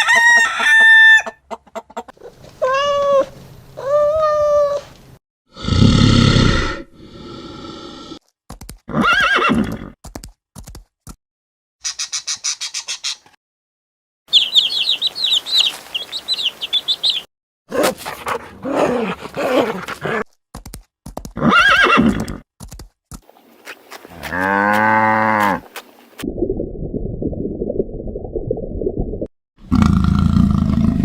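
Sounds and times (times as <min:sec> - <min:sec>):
high chirping calls: 0:11.8 - 0:13.3, 0:14.3 - 0:17.3.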